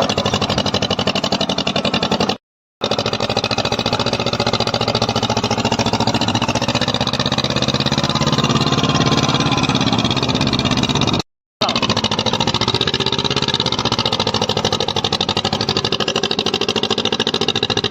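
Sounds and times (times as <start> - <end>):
tractor diesel engine running: 0.0 - 17.9.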